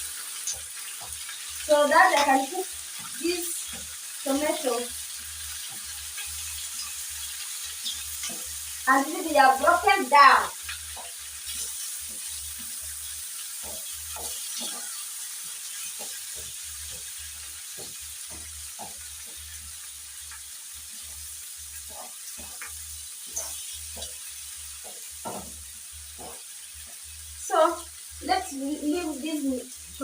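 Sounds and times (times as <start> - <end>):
food sizzling in a pan: 0.0 - 30.0.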